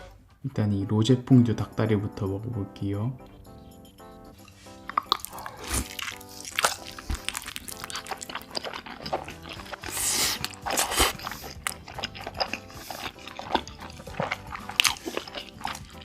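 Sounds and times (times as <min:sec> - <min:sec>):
biting and chewing fried chicken: 0:04.4 - 0:16.0
wet sticky mouth sounds: 0:04.4 - 0:16.0.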